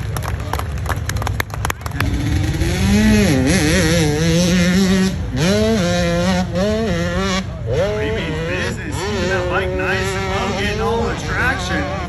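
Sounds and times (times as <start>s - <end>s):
motorcycle engine at high revs: 1.8s - 12.0s.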